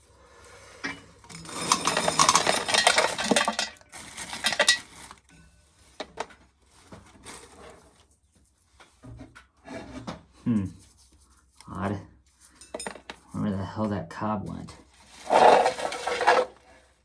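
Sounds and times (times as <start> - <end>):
corn sheller metallic clatter: 1.2 - 5.3, 15.1 - 16.6.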